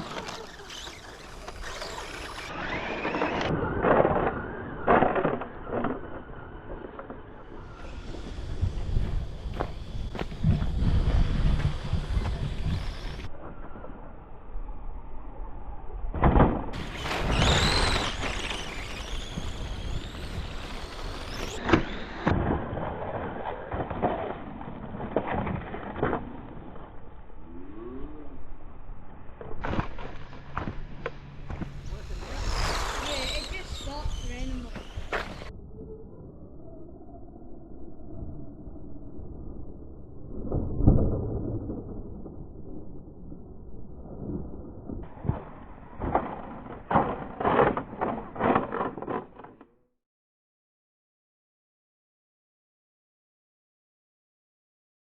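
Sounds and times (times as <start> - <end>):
tyres rushing on dirt: 0.0 - 3.8, 16.8 - 22.2, 29.6 - 35.5
electric motor whine: 0.0 - 4.8, 7.4 - 13.3, 16.8 - 22.3, 29.6 - 35.5.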